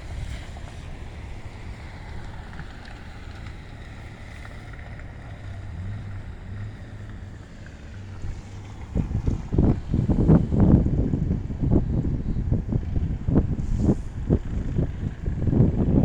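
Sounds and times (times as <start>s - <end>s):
wind blowing against microphone: 7.8s - 16.0s.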